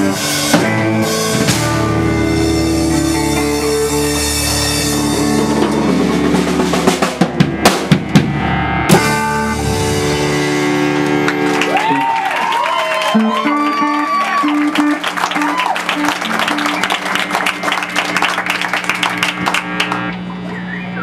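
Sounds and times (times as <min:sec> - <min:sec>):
band music with drum kit: 0:00.0 - 0:20.4
loud sharp drum hits: 0:05.5 - 0:10.6.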